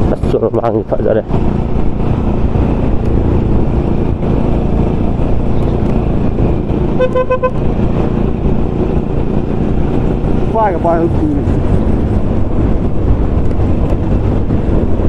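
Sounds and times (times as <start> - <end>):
motorcycle engine rumble: 0.0 - 15.0
wind noise on microphone: 1.2 - 15.0
vehicle horn toot: 7.0 - 7.6.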